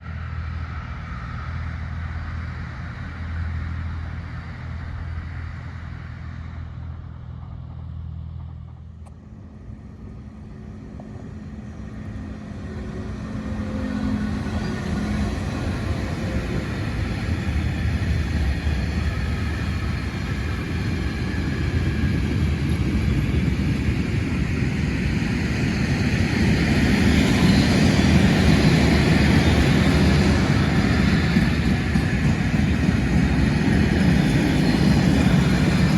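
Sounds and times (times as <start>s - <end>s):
low engine hum: 0.0s - 25.8s
approaching train rumble: 0.0s - 35.9s.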